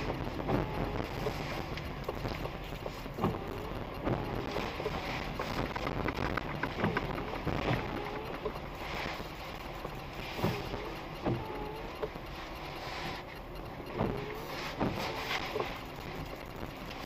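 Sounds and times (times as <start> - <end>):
rain hissing: 0.0 - 17.0.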